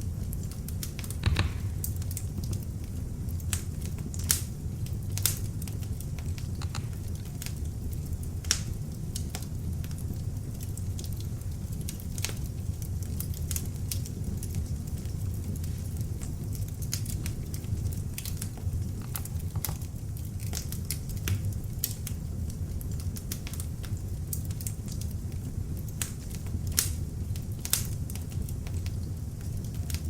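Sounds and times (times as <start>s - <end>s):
log fire crackling: 0.0s - 30.0s
low rumble of flames: 0.0s - 30.0s
sharp pops of fire: 0.4s - 7.6s, 25.8s - 29.0s.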